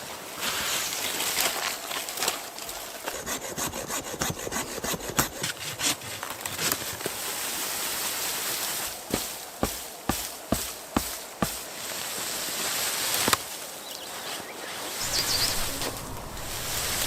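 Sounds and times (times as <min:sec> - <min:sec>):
hand tool rasping wood: 0:03.1 - 0:07.0, 0:09.1 - 0:11.6.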